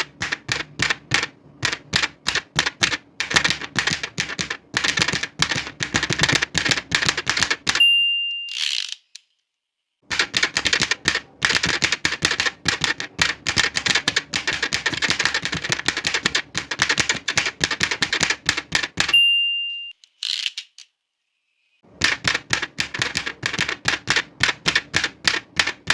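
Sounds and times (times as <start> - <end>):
typewriter carriage return swish: 0.0 - 7.8, 8.5 - 9.2, 10.1 - 19.2, 22.0 - 25.9
typewriter keystrokes: 0.0 - 7.8, 10.1 - 19.2, 21.9 - 25.9
typewriter bell ringing: 7.7 - 8.8, 19.0 - 19.9.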